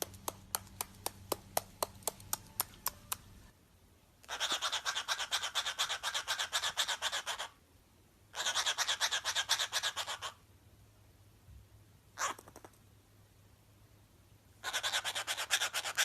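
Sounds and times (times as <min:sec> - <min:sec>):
caged bird chattering trill: 0:04.2 - 0:07.6, 0:08.3 - 0:10.4, 0:12.2 - 0:12.7, 0:14.6 - 0:16.0.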